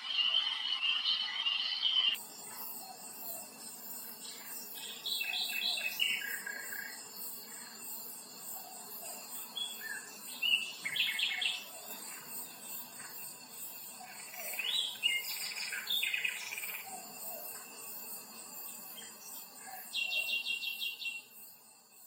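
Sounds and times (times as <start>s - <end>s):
high pulsing insect buzz: 0.0s - 22.0s
birds chirping: 9.4s - 13.0s.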